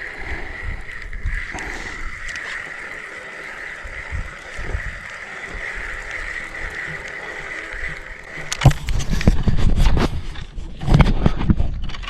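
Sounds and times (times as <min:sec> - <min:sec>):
knocks against camera: 0:08.6 - 0:09.2.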